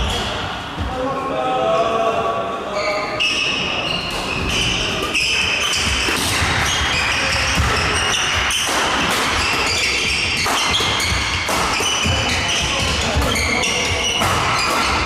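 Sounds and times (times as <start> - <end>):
shoes squeaking on court floor: 2.8 - 15.0
racket striking shuttlecock: 5.0 - 15.0.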